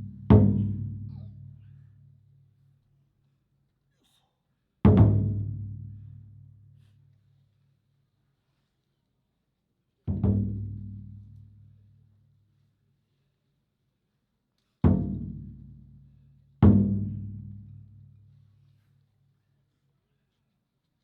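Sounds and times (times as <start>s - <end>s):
taiko drum booming: 0.0s - 1.1s, 4.9s - 5.7s, 10.1s - 11.0s, 16.6s - 17.5s.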